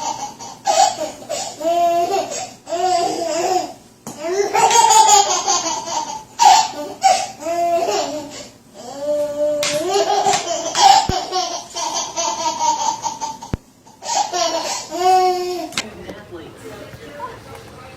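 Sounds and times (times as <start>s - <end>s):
small child laughing: 4.3s - 8.3s, 9.7s - 15.6s.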